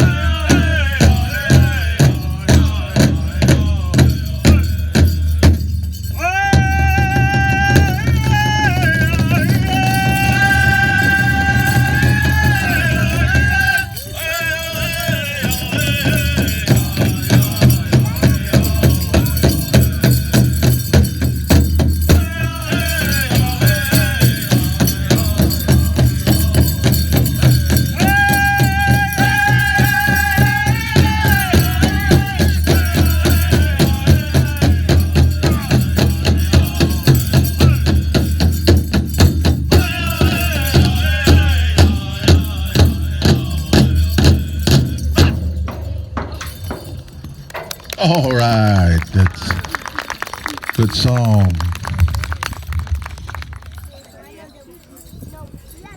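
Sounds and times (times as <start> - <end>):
singers chanting high-pitched: 0.0 - 5.4, 6.1 - 20.5, 22.1 - 38.3, 39.7 - 45.4
steady bass drum beat: 0.0 - 13.9, 14.6 - 46.9.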